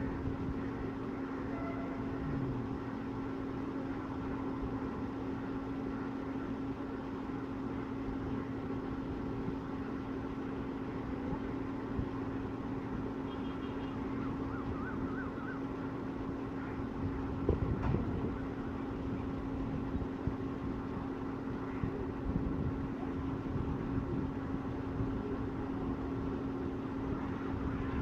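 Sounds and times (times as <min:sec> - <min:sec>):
engine drone: 0:00.0 - 0:28.0.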